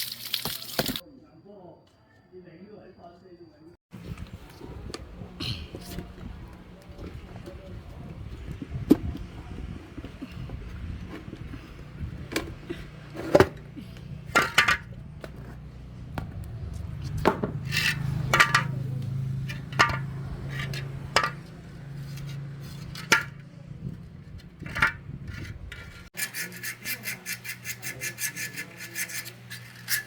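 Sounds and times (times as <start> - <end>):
metal tools clinking: 13.2 - 15.0, 17.6 - 23.4.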